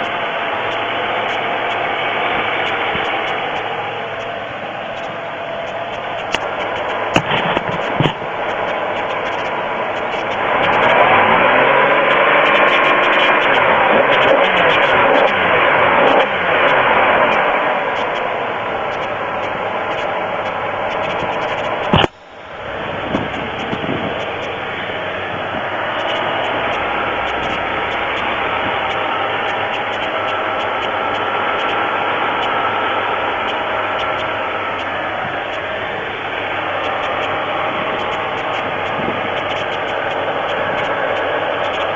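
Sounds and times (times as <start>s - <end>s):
car engine revving: 0.0s - 41.9s
sharp clicks: 2.6s - 11.0s, 18.9s - 22.2s, 26.0s - 31.8s, 33.4s - 35.7s, 36.7s - 41.9s.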